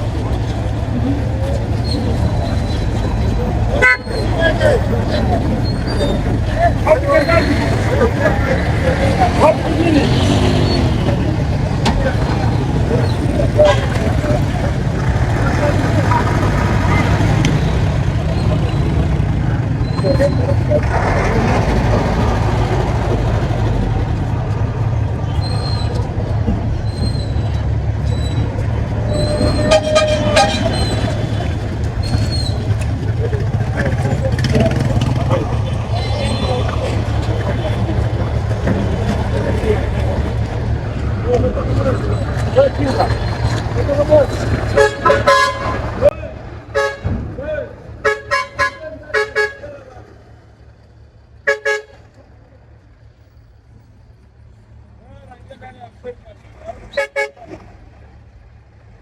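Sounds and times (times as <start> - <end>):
diesel truck engines rumbling: 0.0 - 59.0
truck brakes squealing: 0.8 - 23.6, 25.1 - 39.8, 41.4 - 46.1
vehicle horn toots: 3.7 - 4.5, 13.5 - 14.2, 29.1 - 31.5, 44.7 - 46.1, 46.7 - 47.2, 48.0 - 49.8, 51.4 - 52.1, 56.8 - 57.6.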